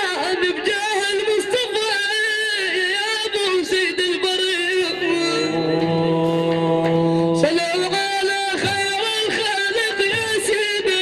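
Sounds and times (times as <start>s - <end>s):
man singing ornamented vocal: 2.6s - 11.0s.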